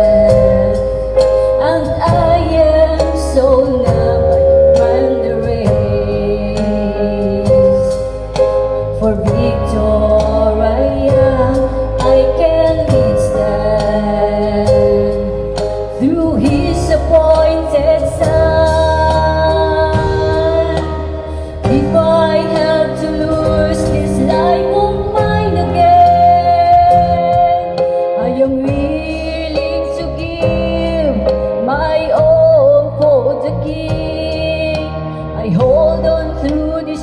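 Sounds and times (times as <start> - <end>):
instrumental accompaniment: 0.0 - 37.0
woman singing gospel song: 1.6 - 8.0, 8.9 - 37.0.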